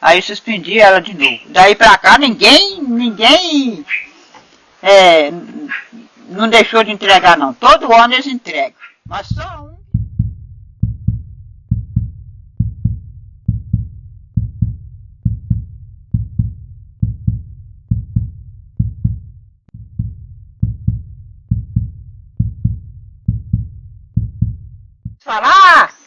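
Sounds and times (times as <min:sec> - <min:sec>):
slow drum beat: 0:09.1 - 0:25.2.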